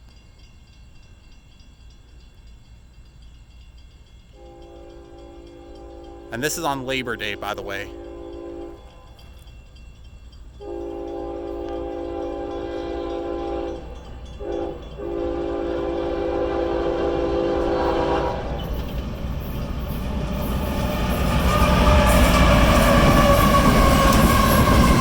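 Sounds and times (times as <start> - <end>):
train rumbling: 0.2 - 25.0
train air horn blasts: 4.4 - 9.2, 10.6 - 18.6.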